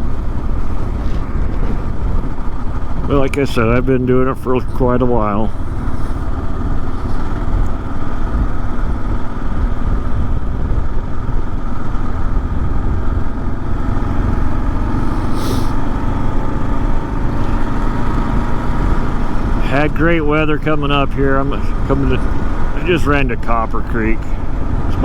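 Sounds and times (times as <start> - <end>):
motorcycle engine running: 0.0 - 25.0
wind noise on microphone: 0.0 - 25.0
brief hiss: 15.0 - 15.8.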